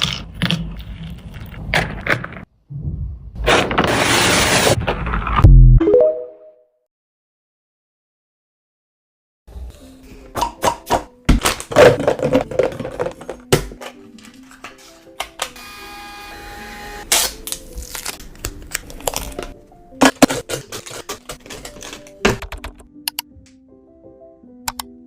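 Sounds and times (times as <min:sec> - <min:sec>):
light background music: 0:09.5 - 0:25.0
food packages clicking and knocking: 0:10.4 - 0:15.6, 0:17.4 - 0:22.9.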